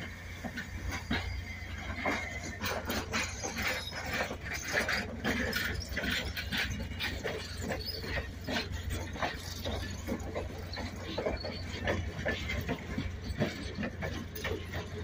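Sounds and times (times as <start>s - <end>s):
low rumble of train: 0.0s - 15.0s
train wheels clattering on rails: 0.0s - 15.0s.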